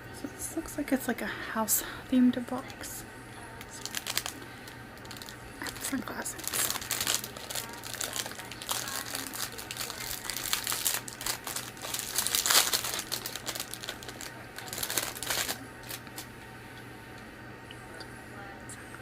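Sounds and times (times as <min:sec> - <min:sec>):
packaging crinkling and rustling: 0:03.7 - 0:04.4, 0:05.0 - 0:16.4.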